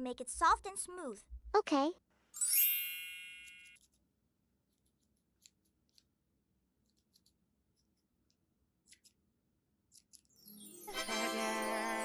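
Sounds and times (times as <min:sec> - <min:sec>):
chime: 0:02.4 - 0:03.8, 0:10.4 - 0:12.0
small scissors snipping: 0:04.7 - 0:06.2, 0:06.8 - 0:10.4.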